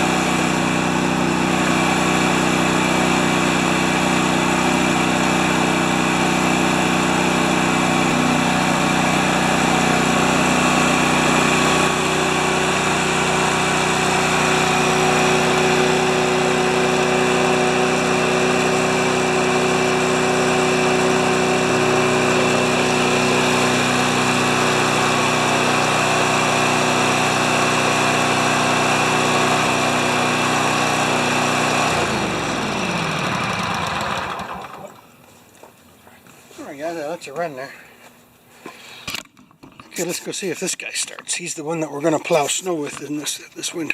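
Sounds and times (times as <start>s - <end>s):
engine winding down: 0.0s - 35.1s
snowblower engine running: 0.0s - 35.2s.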